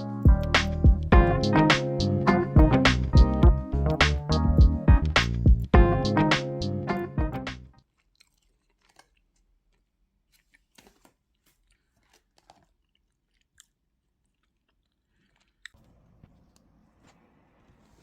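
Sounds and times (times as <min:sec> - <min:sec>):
person chewing crunchy food: 0:07.8 - 0:15.9.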